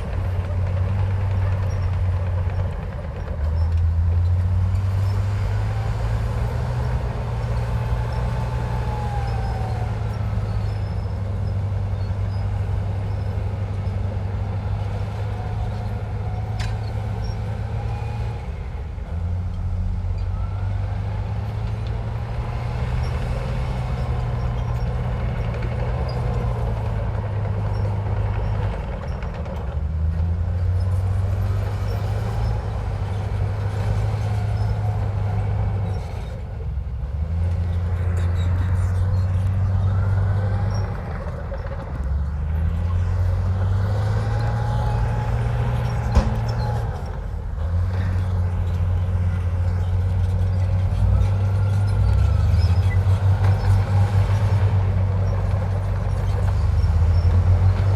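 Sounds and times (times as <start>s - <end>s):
heavy diesel engine under load: 0.0s - 57.9s
faint high squeals: 7.2s - 13.9s.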